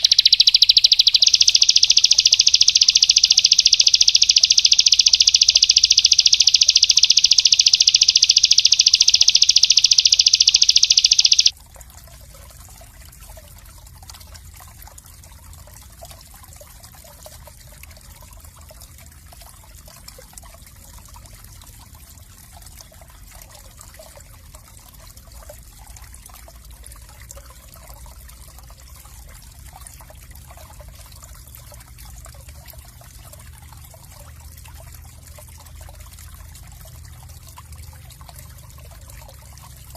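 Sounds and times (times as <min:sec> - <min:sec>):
songbird high trill: 0:00.0 - 0:11.5
trickling water: 0:00.0 - 0:39.9.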